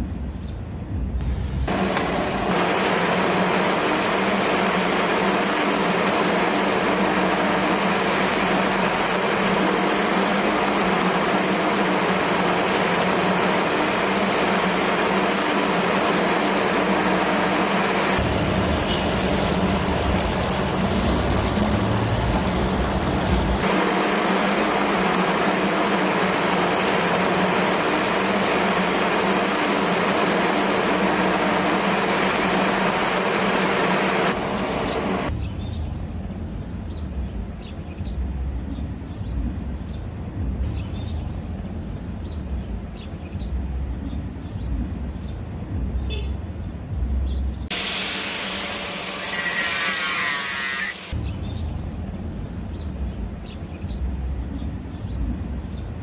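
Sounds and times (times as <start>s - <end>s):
low rumble: 0.0s - 2.6s, 18.1s - 25.0s
welding arc crackling and hissing: 1.2s - 35.4s, 47.7s - 51.2s.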